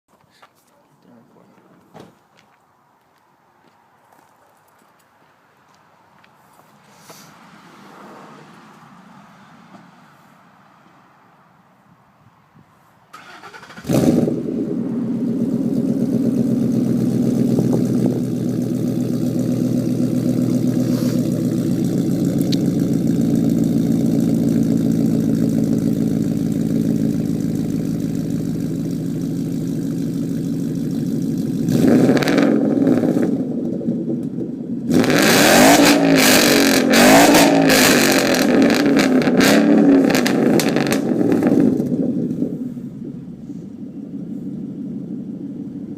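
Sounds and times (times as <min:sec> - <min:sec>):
car engine starting: 0:13.1 - 0:45.9
car engine idling and revving: 0:13.2 - 0:45.9.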